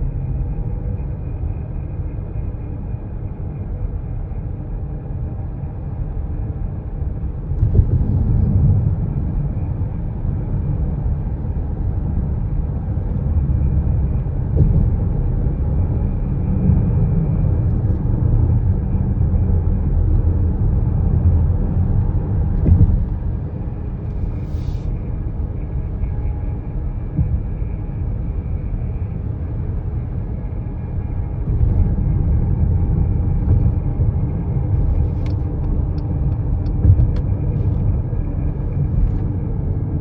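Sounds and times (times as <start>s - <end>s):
steady hum: 0.0s - 40.0s
van accelerating rumble: 7.1s - 40.0s.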